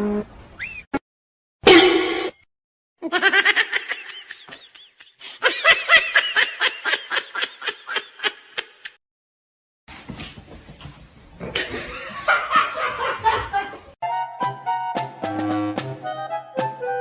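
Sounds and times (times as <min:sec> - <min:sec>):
person laughing hard: 0:03.0 - 0:09.0, 0:11.5 - 0:13.9.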